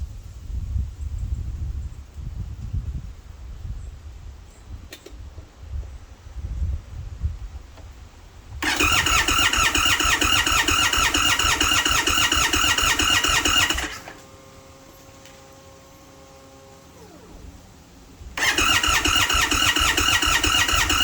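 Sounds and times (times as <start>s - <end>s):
motorcycle starter cranking: 8.6s - 21.0s.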